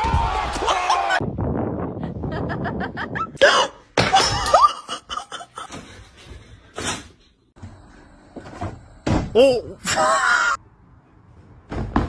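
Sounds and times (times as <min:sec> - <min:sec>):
person laughing: 0:02.0 - 0:03.5, 0:04.2 - 0:05.7.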